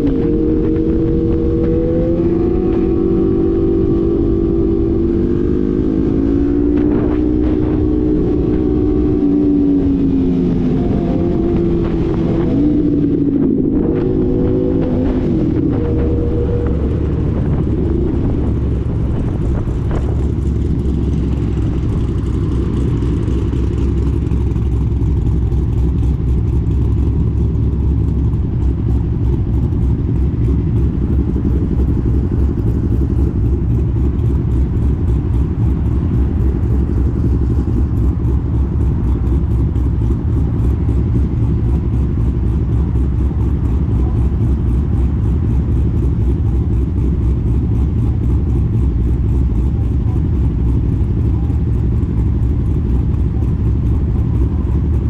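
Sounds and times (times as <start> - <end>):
motorcycle engine rumble: 0.0 - 55.0
road noise: 0.0 - 55.0.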